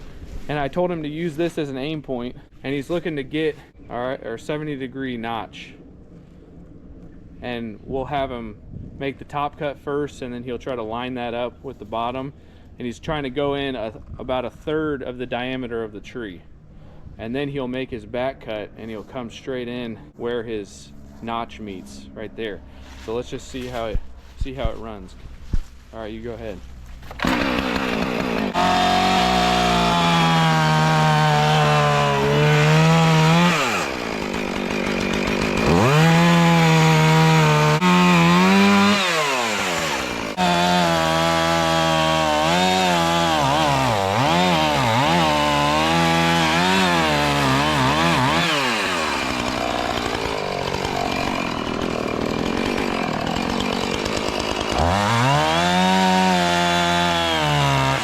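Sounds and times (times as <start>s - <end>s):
chainsaw cutting wood: 27.0s - 58.0s.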